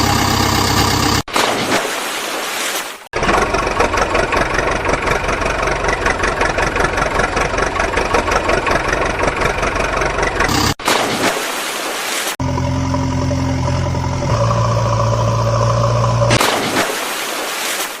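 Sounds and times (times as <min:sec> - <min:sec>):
small engine puttering: 0:00.0 - 0:01.2, 0:03.2 - 0:10.8, 0:12.4 - 0:16.4.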